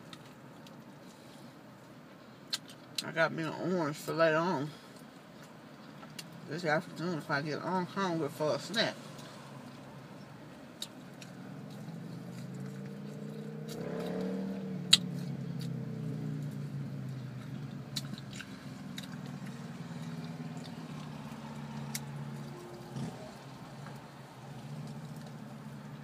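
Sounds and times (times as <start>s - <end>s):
mouth clicks and smacks: 2.5s - 3.1s, 14.9s - 15.8s
chewing and biting fried chicken: 10.5s - 23.6s.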